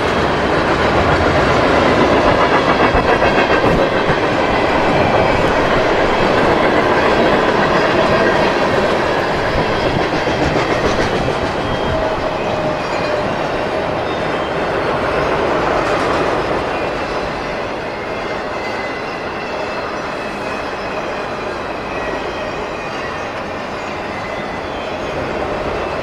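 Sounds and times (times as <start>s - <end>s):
train wheels clacking over rail joints: 0.0s - 13.8s.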